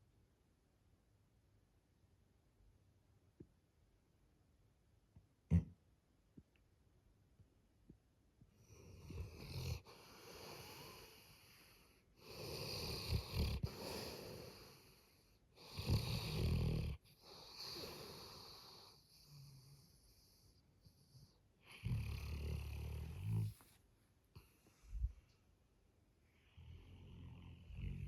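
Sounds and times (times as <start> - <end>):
dog snoring loudly: 9.0 - 11.2, 12.2 - 14.8, 15.6 - 19.6, 21.7 - 23.6, 26.7 - 28.0.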